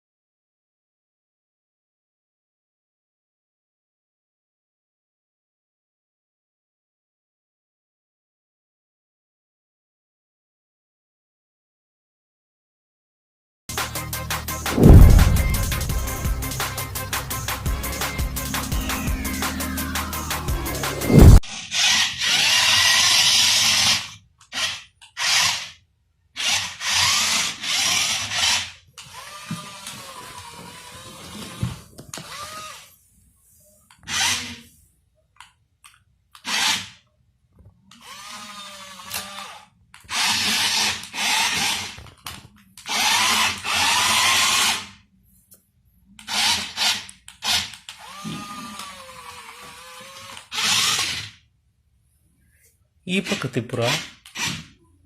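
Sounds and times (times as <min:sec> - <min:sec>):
toy car motor whirring: 0:21.4 - 0:25.8, 0:26.4 - 0:33.0, 0:33.9 - 0:34.8, 0:36.4 - 0:37.0, 0:37.9 - 0:45.0, 0:46.2 - 0:51.5, 0:53.3 - 0:54.8.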